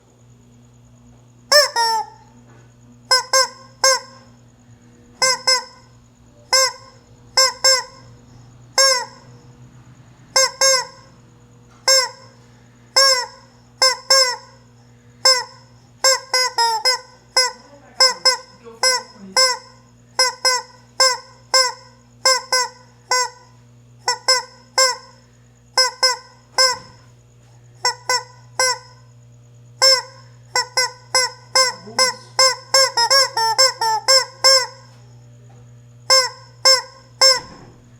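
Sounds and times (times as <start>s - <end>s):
steady low hum: 0.0s - 37.9s
chicken calling: 1.5s - 2.3s, 5.1s - 9.5s, 10.3s - 11.2s, 11.9s - 23.4s, 29.8s - 35.0s.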